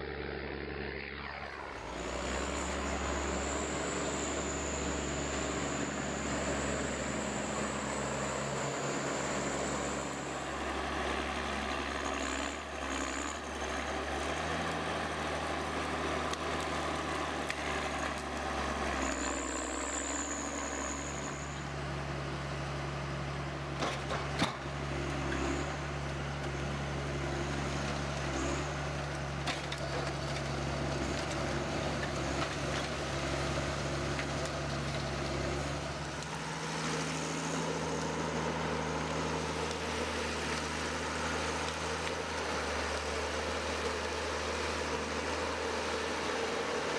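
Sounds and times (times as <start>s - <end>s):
machinery engine humming: 0.0s - 46.9s
brief high squeals: 19.0s - 21.8s.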